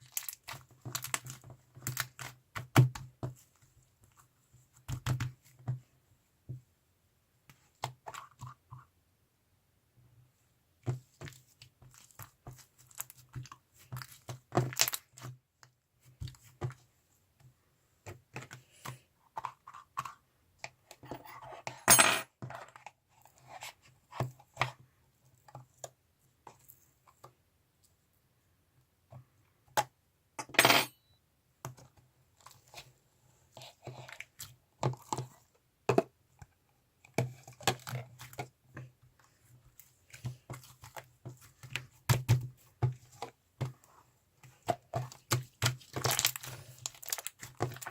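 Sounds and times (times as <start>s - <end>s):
slime squishing: 43.8s - 47.9s.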